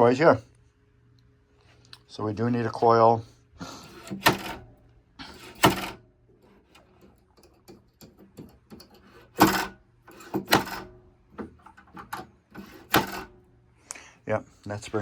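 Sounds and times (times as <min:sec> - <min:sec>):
pinball flipper clacks: 0:03.9 - 0:06.0, 0:06.6 - 0:13.4.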